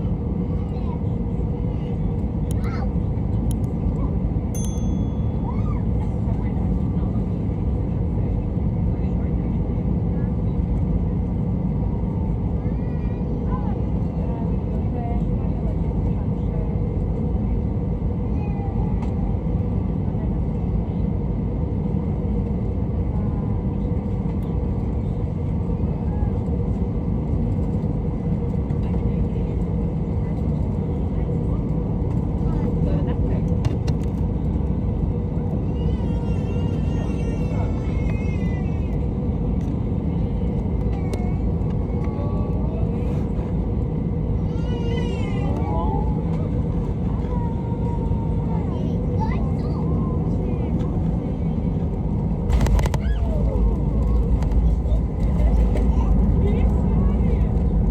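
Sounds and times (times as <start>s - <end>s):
airplane cabin engine rumble: 0.0s - 57.9s.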